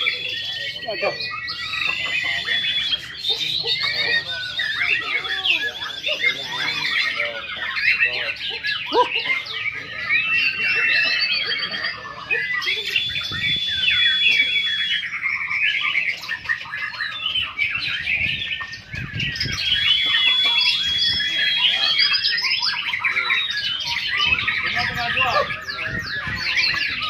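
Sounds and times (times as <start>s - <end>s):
long high bird whistles: 0.0s - 3.4s, 9.9s - 27.0s
birds chirping and trilling: 0.0s - 27.0s.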